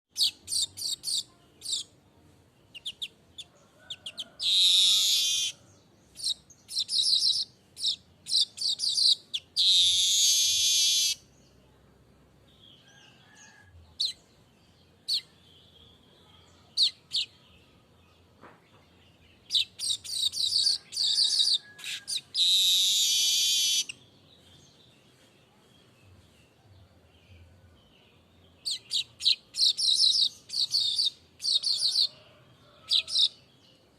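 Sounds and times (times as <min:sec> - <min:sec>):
bird chirping and buzzing: 0:00.1 - 0:01.9, 0:02.7 - 0:11.5, 0:19.1 - 0:25.1, 0:27.9 - 0:32.2.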